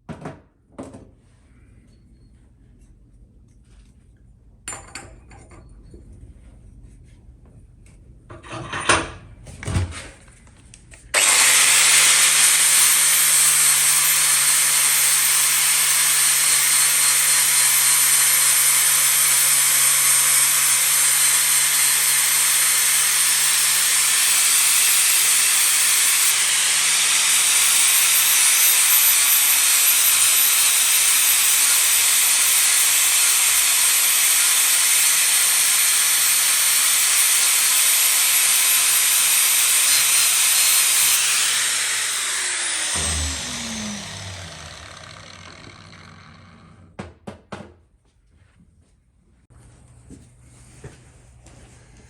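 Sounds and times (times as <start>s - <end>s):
power tool hissing on steel: 11.2s - 46.9s
low motor hum: 41.7s - 47.0s
knocks: 47.0s - 47.8s.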